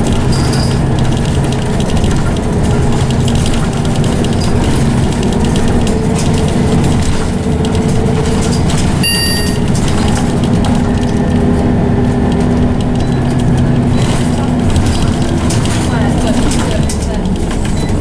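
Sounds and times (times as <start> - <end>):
bus engine whine: 0.0 - 18.0
interior rattles and clicks: 0.0 - 18.0
brief high chime: 9.0 - 9.6.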